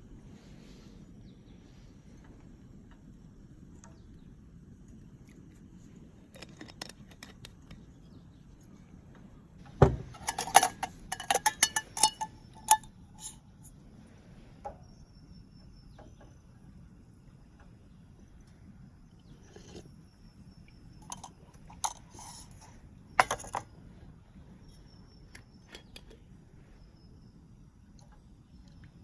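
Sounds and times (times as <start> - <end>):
knock on metal: 9.8 - 10.1
metal objects clinking: 9.9 - 13.4, 21.0 - 23.7.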